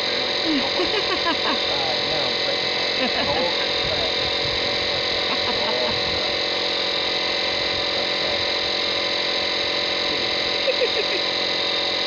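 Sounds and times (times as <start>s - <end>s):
engine idling with whine: 0.0s - 12.0s.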